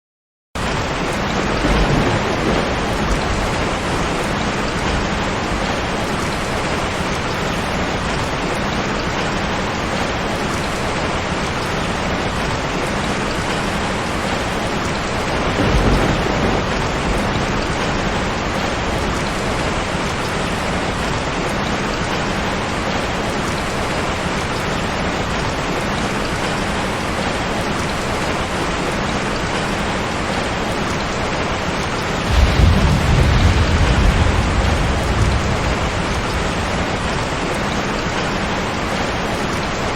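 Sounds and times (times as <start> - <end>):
heavy rain falling: 0.6 - 39.9
thunder rumbling: 0.7 - 8.2, 14.3 - 21.0, 32.2 - 39.6.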